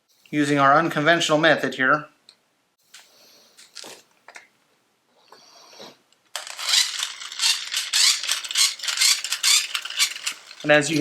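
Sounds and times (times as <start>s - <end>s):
faint handling sounds: 2.8s - 4.5s
toy bubble gun motor ratcheting: 6.4s - 11.0s.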